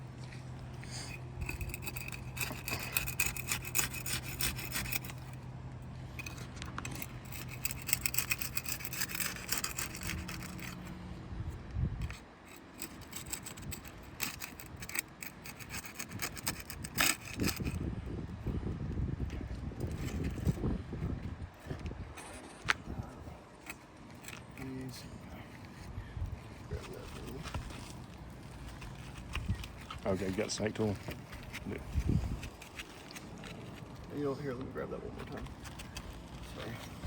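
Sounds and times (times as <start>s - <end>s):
hand tool scraping shingles: 0.8s - 5.4s, 6.2s - 10.9s, 12.1s - 17.8s, 26.6s - 34.0s.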